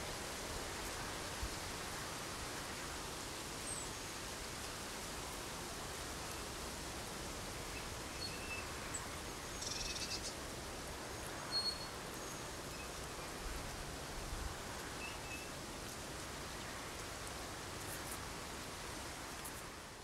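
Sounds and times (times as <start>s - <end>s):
steady outdoor hiss: 0.0s - 20.0s
faint high-pitched bird chirps: 8.2s - 8.7s, 9.5s - 10.3s, 11.5s - 11.9s.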